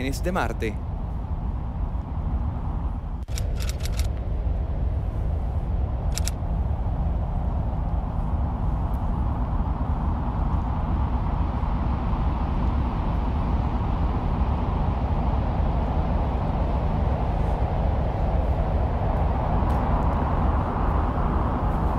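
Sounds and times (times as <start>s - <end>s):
low rumbling noise: 0.0s - 21.9s.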